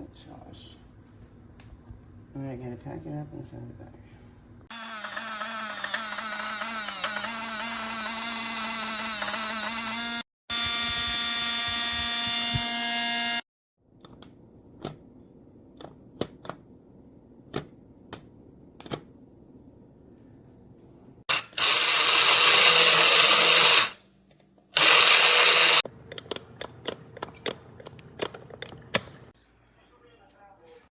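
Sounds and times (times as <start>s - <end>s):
small electric motor whirring: 4.7s - 13.4s, 21.3s - 24.0s, 24.8s - 25.8s.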